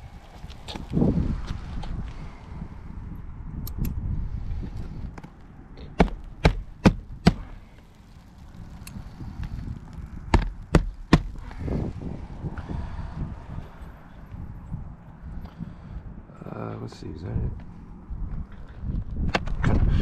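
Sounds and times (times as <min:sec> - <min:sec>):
hatchet hammering roofing nails: 0:06.0 - 0:07.6, 0:10.3 - 0:11.4.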